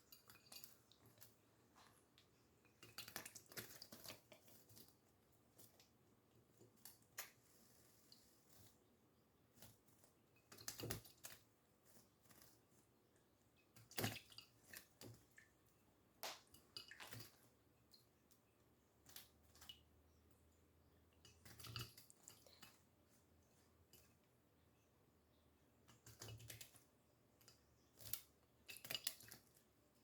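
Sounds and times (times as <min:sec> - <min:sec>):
faint clicks and taps: 0:00.1 - 0:08.8.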